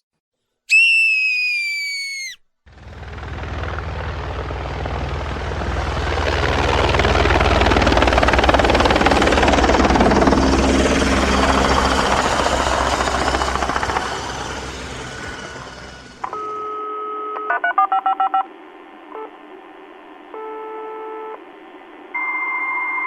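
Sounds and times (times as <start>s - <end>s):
telephone dial tone: 16.2s - 18.5s
noise: 17.6s - 22.7s.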